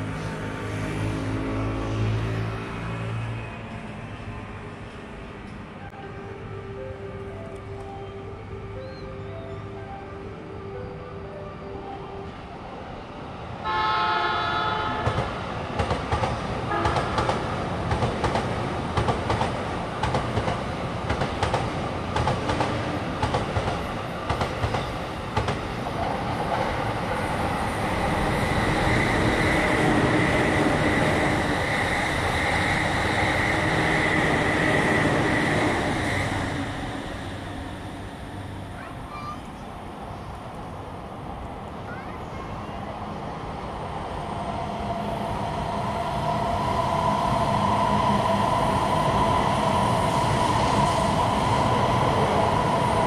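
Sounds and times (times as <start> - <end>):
passing train whine: 0.0 - 53.0
train horn: 13.6 - 15.2, 16.7 - 17.3.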